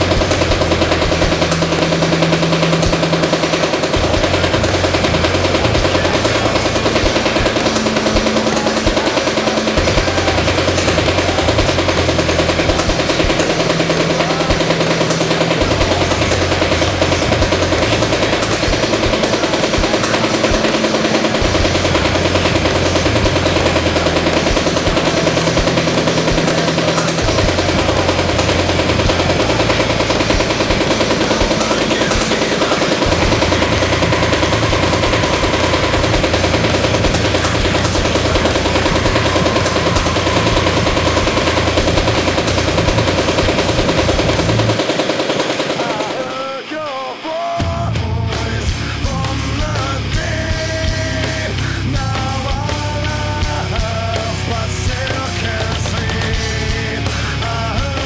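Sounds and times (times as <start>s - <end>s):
low hum: 0.0s - 45.9s
paintball marker firing rapidly: 0.0s - 46.6s.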